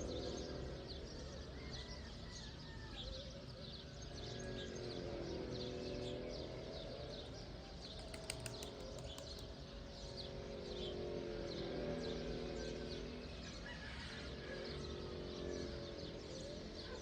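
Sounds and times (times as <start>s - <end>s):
birds chirping: 0.0s - 17.0s
quick run of clicks: 8.0s - 9.5s.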